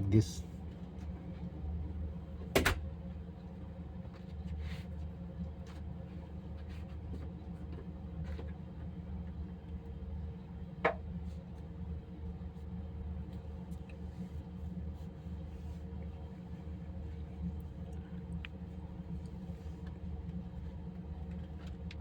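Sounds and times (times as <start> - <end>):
low steady hum: 9.0 - 22.0.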